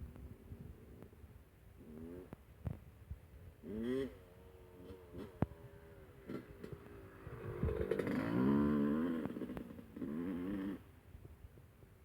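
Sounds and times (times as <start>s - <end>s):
dirt bike engine revving: 3.7s - 10.8s.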